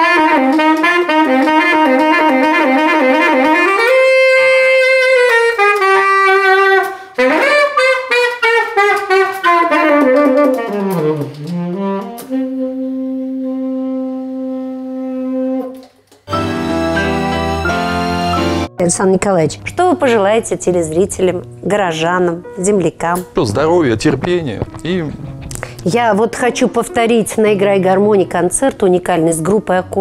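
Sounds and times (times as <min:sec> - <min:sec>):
saxophone jazz melody: 0:00.0 - 0:30.0
different piece of music: 0:16.3 - 0:29.1.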